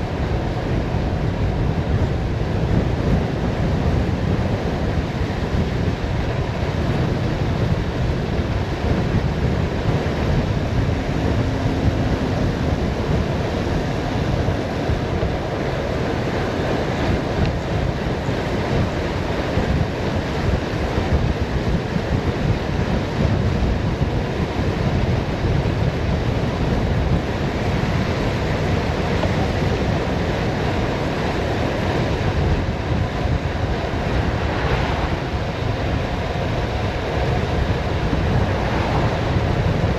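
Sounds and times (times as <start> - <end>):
tyres rumbling on road: 0.0 - 39.9
wind rushing over microphone: 0.0 - 39.9.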